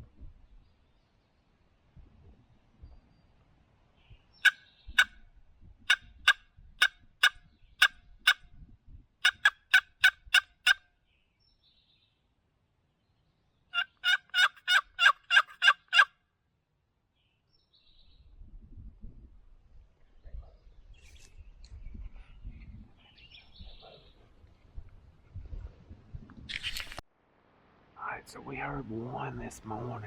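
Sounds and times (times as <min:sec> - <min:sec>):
turkey yelping: 0:05.9 - 0:08.4, 0:09.2 - 0:10.8, 0:13.8 - 0:16.1.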